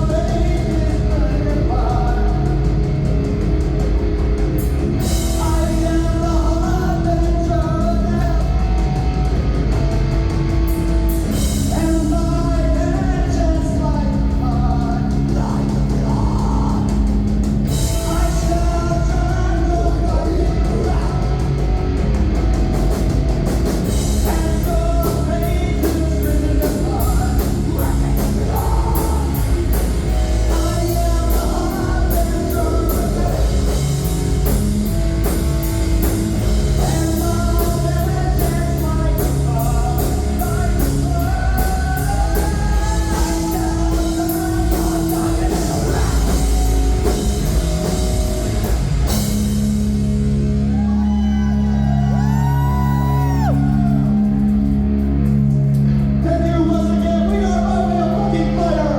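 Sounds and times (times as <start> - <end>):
person singing: 0.0 - 2.8, 11.6 - 17.1, 17.7 - 21.6, 24.1 - 34.6, 36.4 - 48.6, 50.7 - 55.6
heavy rock band playing: 0.0 - 58.9.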